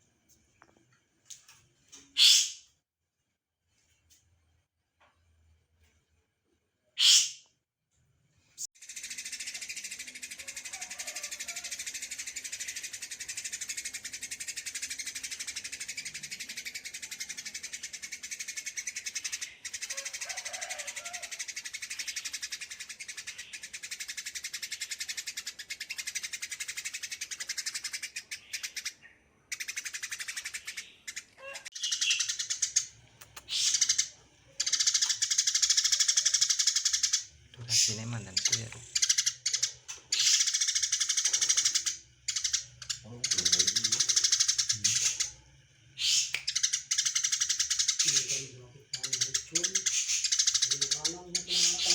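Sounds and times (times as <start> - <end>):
small songbirds chirping: 8.7 - 51.9.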